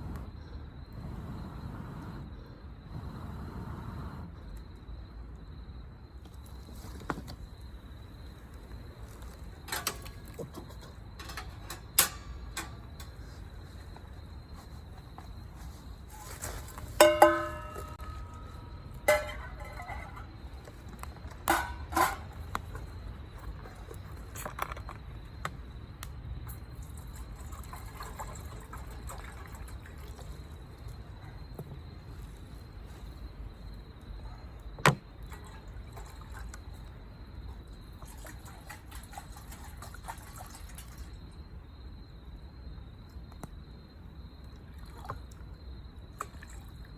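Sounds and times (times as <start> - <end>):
metal cookware clinking: 16.9 - 20.4, 21.4 - 22.4.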